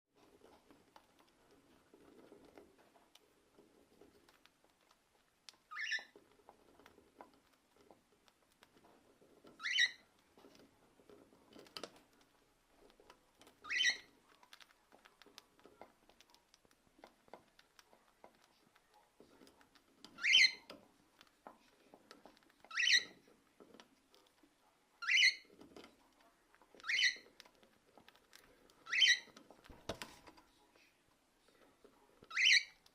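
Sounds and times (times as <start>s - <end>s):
rustling: 0.1s - 32.9s
cockatiel chirping: 5.7s - 6.2s, 9.6s - 10.0s, 13.6s - 14.1s, 20.2s - 20.7s, 22.7s - 23.2s, 25.0s - 25.5s, 26.8s - 27.3s, 28.8s - 29.4s, 32.3s - 32.8s.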